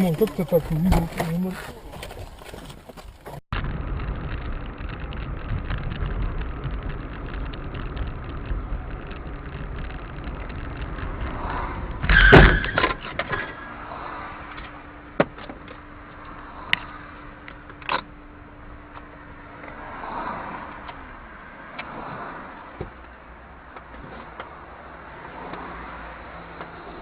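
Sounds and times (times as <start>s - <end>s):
car road rumble: 0.0s - 27.0s
steady hum: 13.4s - 21.6s.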